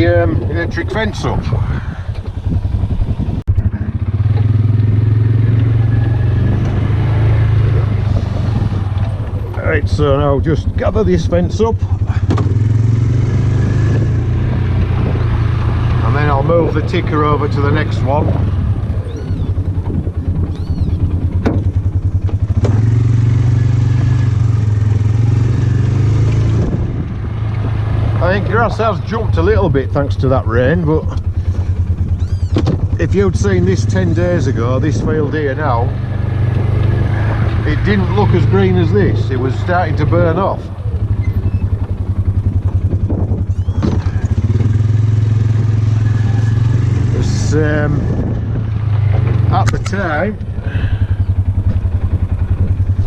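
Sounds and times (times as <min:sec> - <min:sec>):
utility vehicle engine humming: 0:00.0 - 0:53.0.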